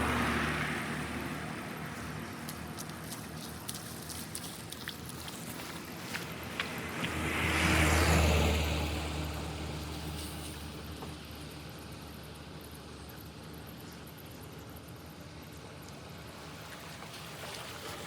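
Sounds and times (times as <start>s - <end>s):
car passing by: 0.0s - 3.4s, 5.6s - 10.9s, 16.3s - 18.0s.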